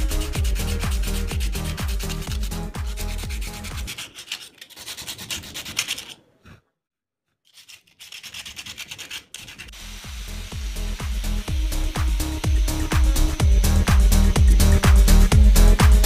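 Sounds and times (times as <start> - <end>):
electronic music with beat: 0.0 - 3.9, 10.0 - 16.0.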